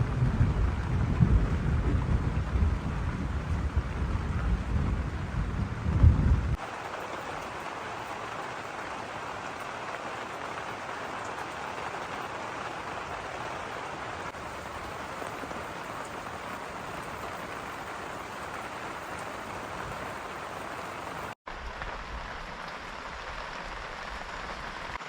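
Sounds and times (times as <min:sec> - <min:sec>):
thunder rumbling: 0:00.0 - 0:06.6, 0:14.3 - 0:21.4
heavy rain: 0:00.0 - 0:25.0.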